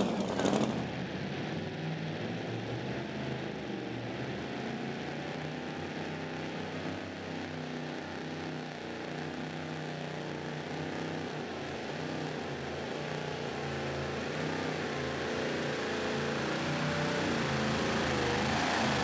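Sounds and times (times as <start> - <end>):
truck engine running hard: 0.0 - 1.9, 10.0 - 19.0.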